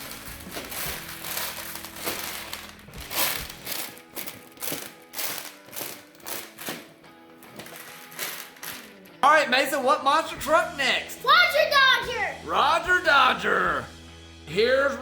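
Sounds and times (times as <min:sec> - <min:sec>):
candies and plastic toys rattling: 0:00.0 - 0:09.2
background music: 0:00.0 - 0:15.0.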